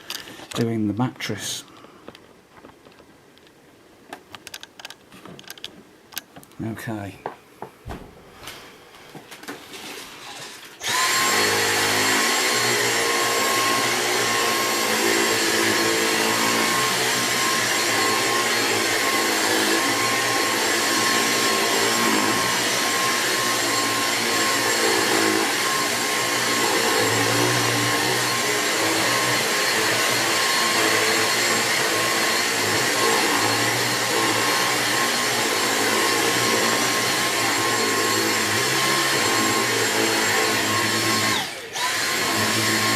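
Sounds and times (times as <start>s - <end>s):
cordless vacuum running: 8.4s - 42.9s.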